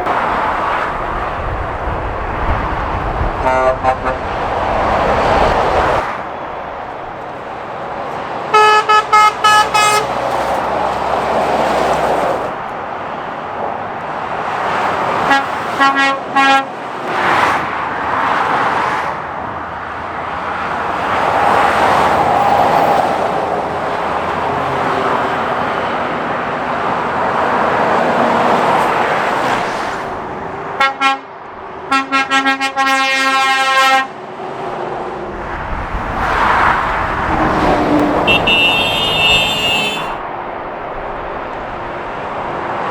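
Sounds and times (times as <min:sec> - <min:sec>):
lorries passing at speed: 0:00.0 - 0:42.9
horn blasts: 0:03.2 - 0:04.6, 0:08.5 - 0:10.2, 0:15.2 - 0:16.8, 0:30.8 - 0:31.3, 0:31.9 - 0:34.1, 0:36.6 - 0:40.4.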